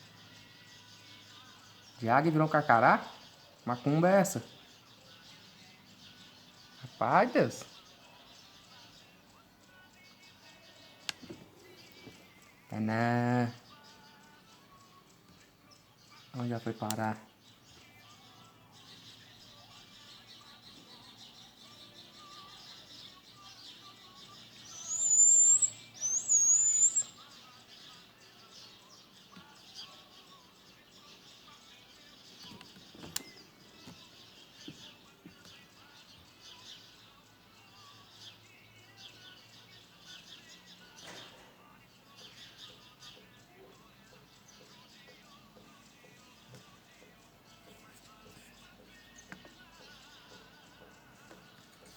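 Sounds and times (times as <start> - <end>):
birds chattering: 0.0 - 51.9
thin whistled bird notes: 20.4 - 27.3, 32.0 - 34.2.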